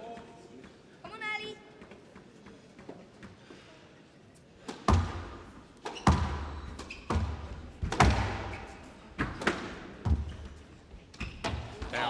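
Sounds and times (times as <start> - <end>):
squash ball cracks: 4.6 - 10.0.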